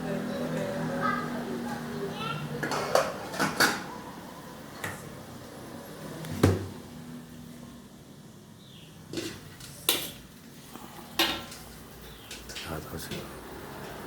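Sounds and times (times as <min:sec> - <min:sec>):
cookware and utensils clattering: 0:02.5 - 0:04.2, 0:09.1 - 0:14.0.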